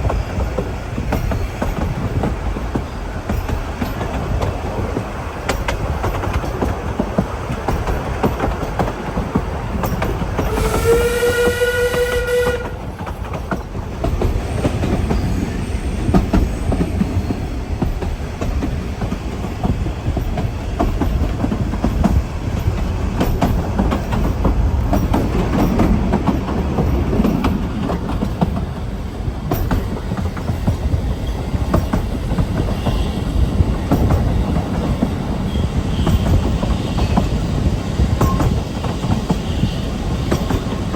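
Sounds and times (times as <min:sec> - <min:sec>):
wheels clicking over rail joints: 0:00.0 - 0:15.4, 0:16.1 - 0:40.9
train rumbling: 0:00.0 - 0:40.9
train whistle: 0:10.4 - 0:12.9.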